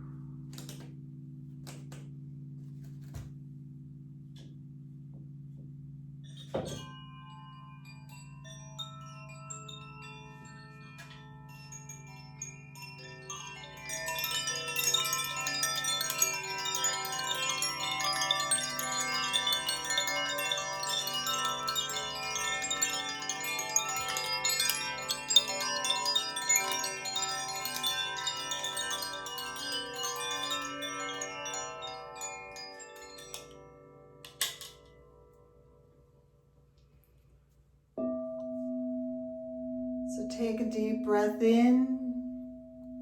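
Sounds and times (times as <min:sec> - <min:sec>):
low steady hum: 0:00.0 - 0:08.5
chimes ringing: 0:06.3 - 0:34.9.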